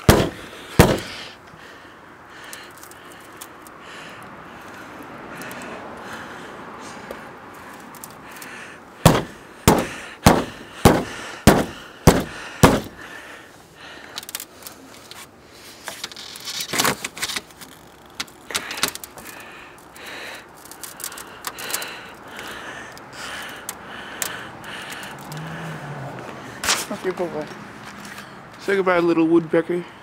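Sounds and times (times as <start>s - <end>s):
woodpecker knocking on wood: 9.1s - 13.0s.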